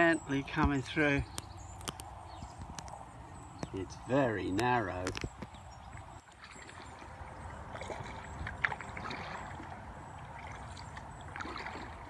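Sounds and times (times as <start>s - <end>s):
paddle strokes splashing water: 4.6s - 12.0s.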